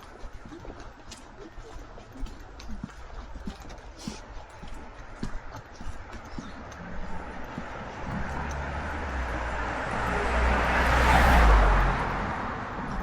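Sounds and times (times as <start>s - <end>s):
vehicle passing by: 6.6s - 13.0s.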